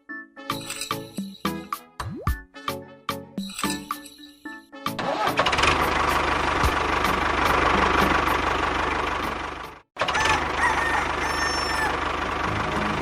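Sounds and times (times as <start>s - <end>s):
engine running: 5.0s - 13.0s.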